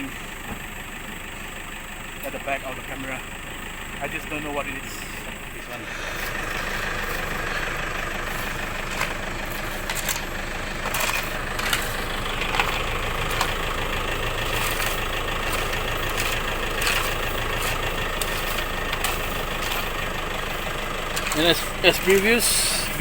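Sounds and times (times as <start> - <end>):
engine running steadily: 0.0 - 23.0
sharp clicks and knocks: 8.9 - 13.8.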